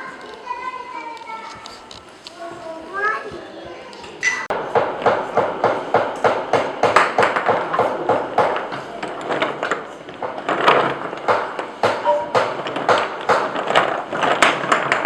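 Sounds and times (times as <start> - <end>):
wooden pieces knocking together: 6.0 - 15.0.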